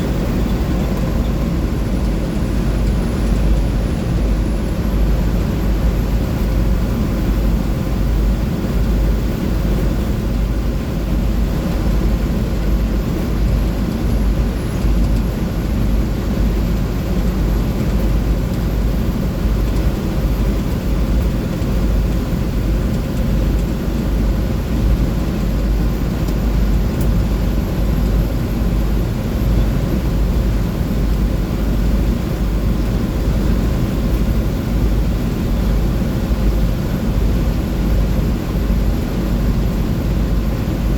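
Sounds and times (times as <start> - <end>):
bus diesel engine droning: 0.0 - 7.1
road and wind noise: 0.0 - 40.9.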